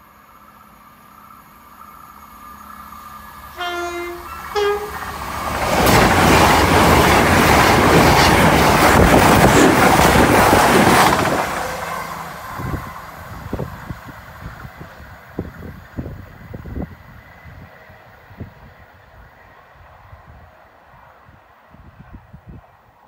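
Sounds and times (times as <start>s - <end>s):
train passing at speed: 0.0s - 23.0s
wheels rushing on rail: 0.0s - 23.0s
two-tone train horn: 3.5s - 5.3s, 11.7s - 13.0s.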